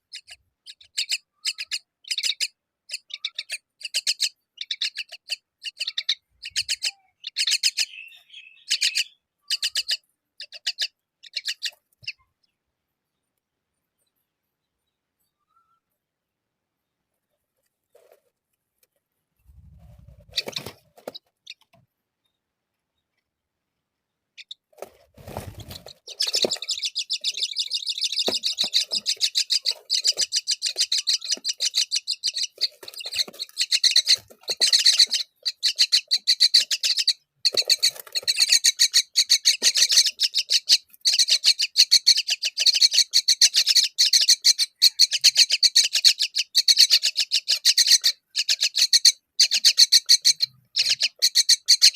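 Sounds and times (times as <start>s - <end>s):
chicks chirping rapidly: 0.0s - 12.2s, 19.5s - 21.8s, 24.4s - 51.9s.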